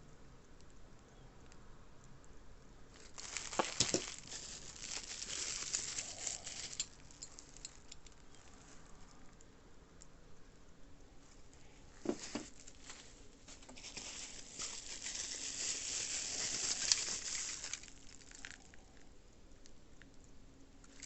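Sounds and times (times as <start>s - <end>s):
packaging crinkling and rustling: 2.9s - 8.9s, 12.0s - 19.0s.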